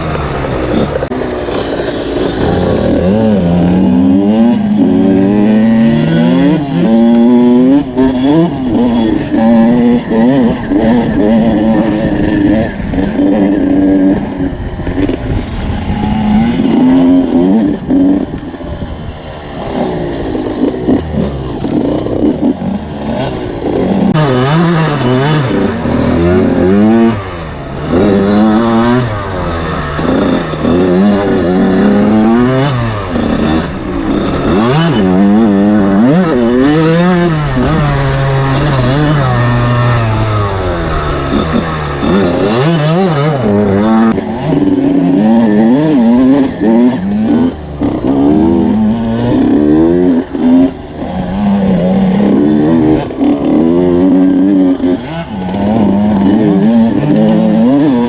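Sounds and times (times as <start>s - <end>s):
two-stroke dirt bike engine revving: 0.0s - 58.0s.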